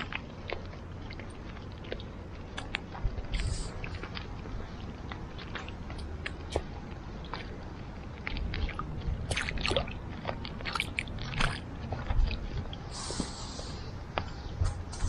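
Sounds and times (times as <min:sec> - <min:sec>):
wet squishes in mud: 0:00.0 - 0:14.5.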